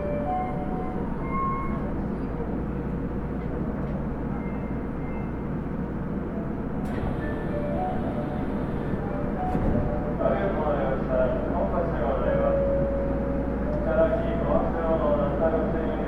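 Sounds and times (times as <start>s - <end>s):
wheels rumbling on rail: 5.0s - 16.0s.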